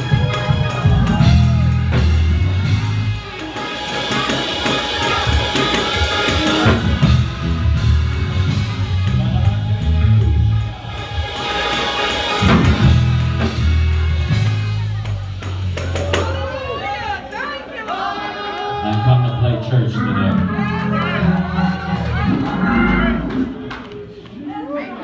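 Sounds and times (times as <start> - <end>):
drum kit: 0.0 - 16.6
worship band music: 0.0 - 24.6.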